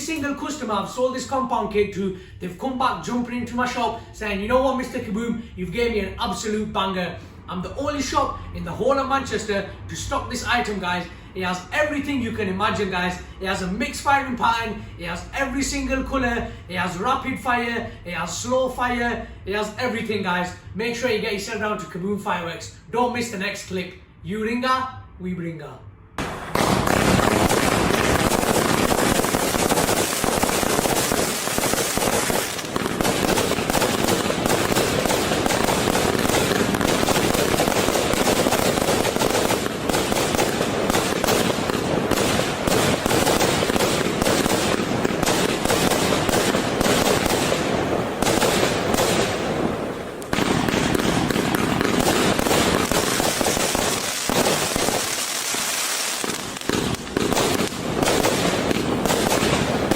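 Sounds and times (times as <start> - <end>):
firework barrage with crackling: 26.2 - 59.9.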